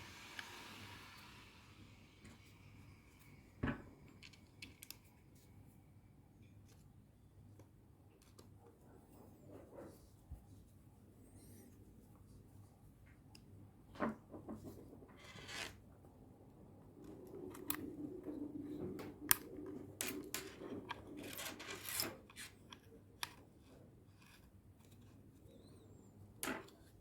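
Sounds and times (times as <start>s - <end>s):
rubbing and scraping of parts: 14.5s - 15.8s, 17.1s - 23.4s.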